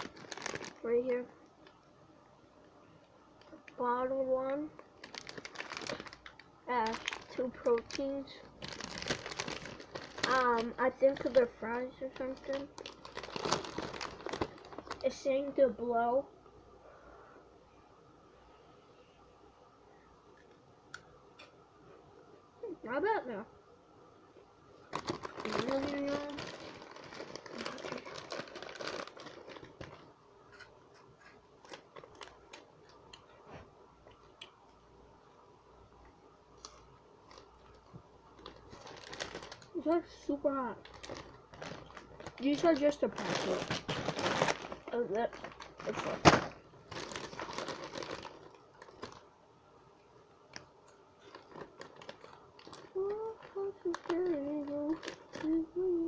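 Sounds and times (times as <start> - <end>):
faint crunches: 0.0 - 1.0, 4.7 - 15.1, 24.8 - 34.5, 36.6 - 39.8, 40.8 - 49.3, 50.5 - 55.7
snack packet crinkling: 0.0 - 1.8, 4.5 - 15.5, 24.8 - 33.3, 36.6 - 49.3, 50.5 - 55.9.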